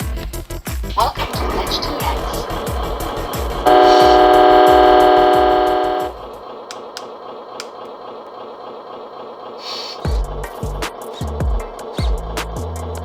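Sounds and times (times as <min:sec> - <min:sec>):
loud held horn-like tone: 0:01.4 - 0:06.3
electronic music with bass beat: 0:10.1 - 0:13.0.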